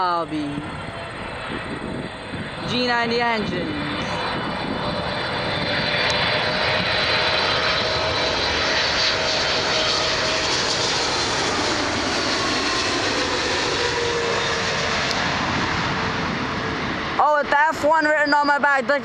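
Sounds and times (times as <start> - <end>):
jet engines passing by: 0.0 - 19.0.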